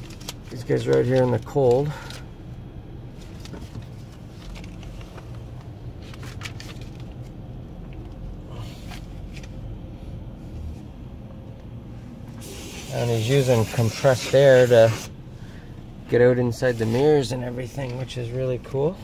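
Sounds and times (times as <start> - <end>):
car engine idling: 0.0 - 19.0
short rustles and clicks: 3.2 - 8.2.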